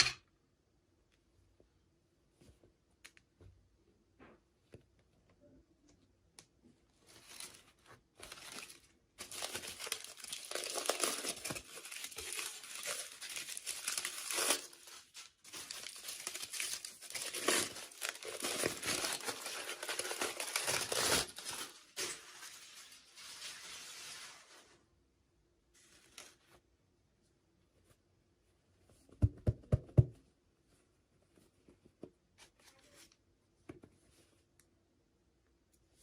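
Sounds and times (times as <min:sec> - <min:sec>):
packaging crinkling and tearing: 0:07.1 - 0:24.5.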